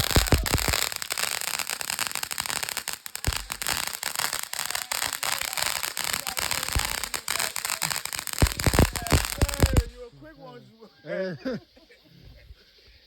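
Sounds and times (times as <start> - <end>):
firework hissing and crackling: 0.0 - 10.1.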